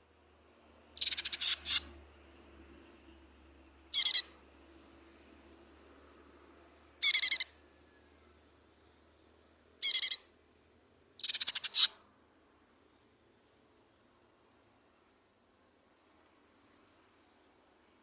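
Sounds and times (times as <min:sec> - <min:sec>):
leafbird trilled calls: 0:01.0 - 0:01.8, 0:04.0 - 0:04.3, 0:07.0 - 0:07.5, 0:09.8 - 0:10.2, 0:11.2 - 0:11.9.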